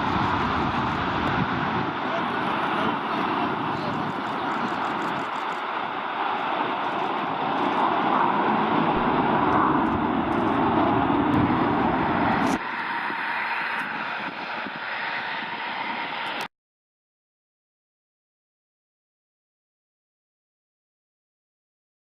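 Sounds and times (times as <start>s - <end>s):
jet aircraft taking off: 0.0s - 16.5s.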